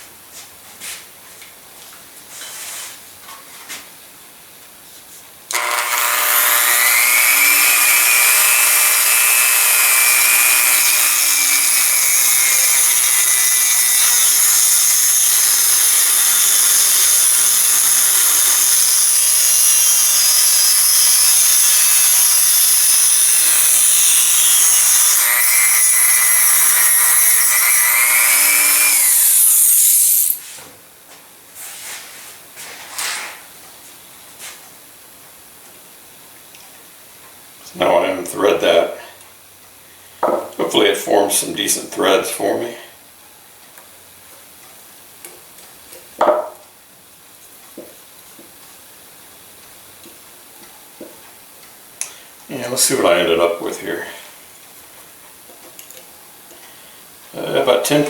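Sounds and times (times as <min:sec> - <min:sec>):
rotary tool cutting metal screw: 0:05.5 - 0:30.4.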